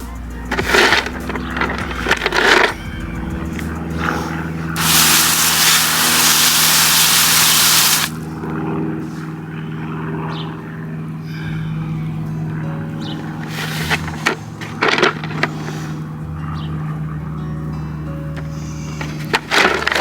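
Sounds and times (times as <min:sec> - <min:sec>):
steady low hum: 0:00.0 - 0:20.0
water spray hissing over rocks: 0:04.8 - 0:08.2.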